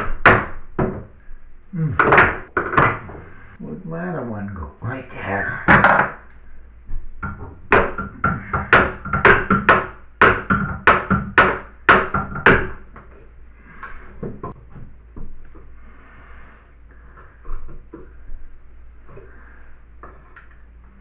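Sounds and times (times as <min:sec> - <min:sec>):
hand tool knocking on wall: 0:00.0 - 0:01.2, 0:02.0 - 0:03.3, 0:05.7 - 0:06.2, 0:06.9 - 0:13.2.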